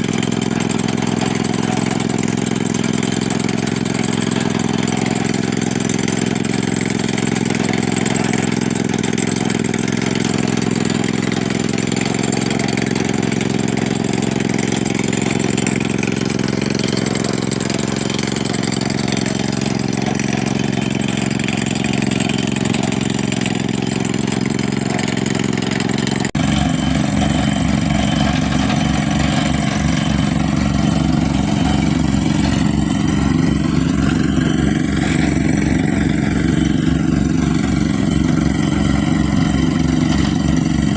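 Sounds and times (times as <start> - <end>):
engine running: 0.0 - 40.9
throbbing low engine note: 26.4 - 40.9.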